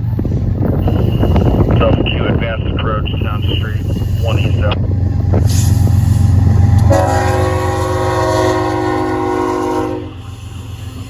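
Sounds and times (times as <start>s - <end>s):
low rumble: 0.0s - 9.0s
locomotive air horn blast: 0.8s - 1.8s, 5.4s - 11.0s.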